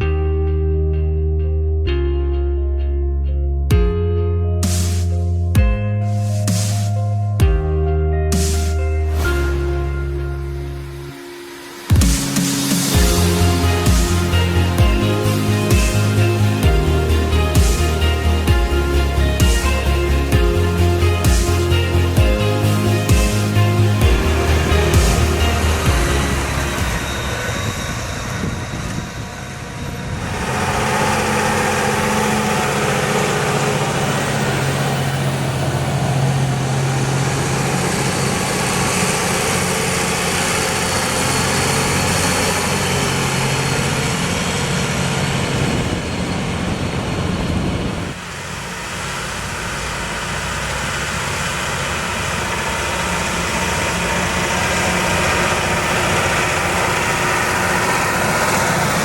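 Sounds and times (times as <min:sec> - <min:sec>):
tractor diesel engine running: 0:11.9 - 0:59.0.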